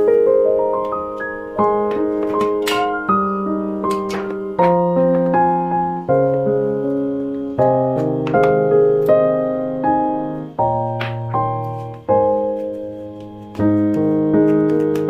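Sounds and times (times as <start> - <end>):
piano playing gentle chords: 0.0 - 15.0.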